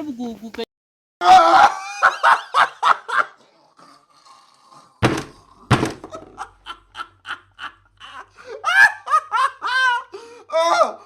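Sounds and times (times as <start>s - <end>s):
heavy thuds: 5.0s - 6.4s
person laughing: 6.1s - 10.2s.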